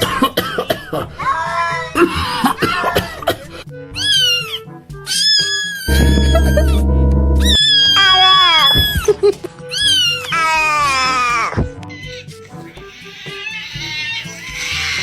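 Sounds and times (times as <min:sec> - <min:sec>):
background music: 0:00.0 - 0:15.0
loud low buzzing: 0:05.9 - 0:08.6
cat meowing and yowling: 0:09.7 - 0:12.2, 0:12.8 - 0:15.0.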